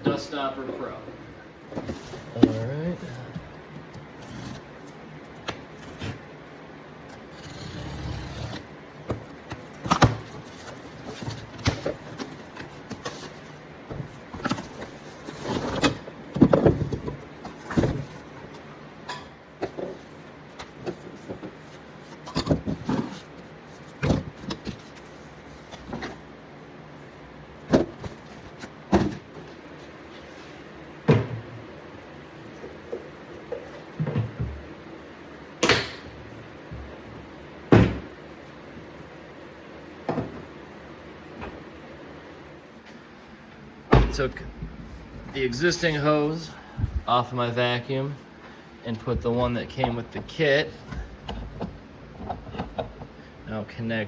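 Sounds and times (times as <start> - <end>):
plastic parts knocking and scraping: 49.0 - 53.2.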